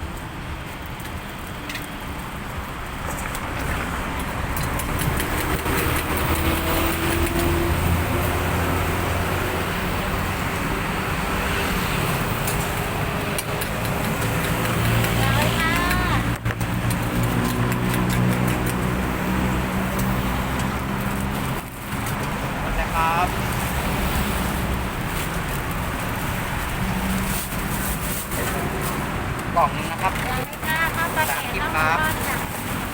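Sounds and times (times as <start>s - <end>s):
traffic noise: 0.0s - 32.9s.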